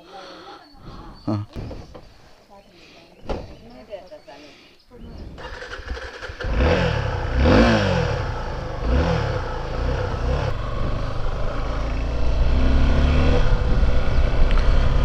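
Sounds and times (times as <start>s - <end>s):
motorcycle engine revving: 5.4s - 15.0s.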